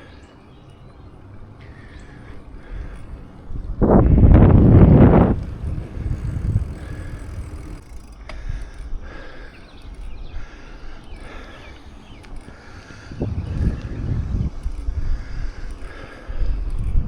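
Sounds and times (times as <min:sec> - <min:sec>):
light clicks: 0:00.4 - 0:17.0
wind rumbling on microphone: 0:01.4 - 0:09.2, 0:12.9 - 0:17.0.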